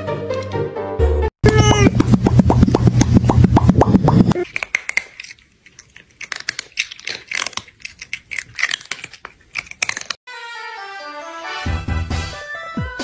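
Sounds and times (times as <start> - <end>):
crunchy chewing: 4.4 - 10.2.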